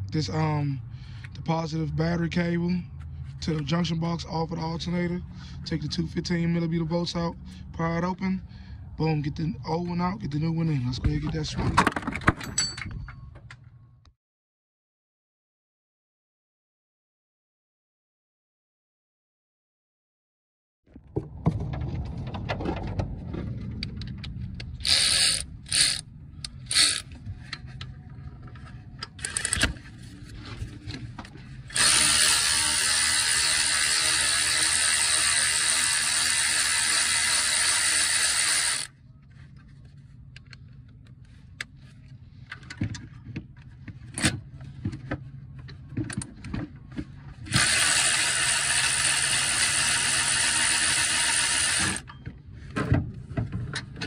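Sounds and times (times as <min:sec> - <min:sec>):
powered ratchet spinning: 0:24.8 - 0:27.2, 0:29.2 - 0:29.8, 0:31.6 - 0:38.9, 0:47.5 - 0:52.1.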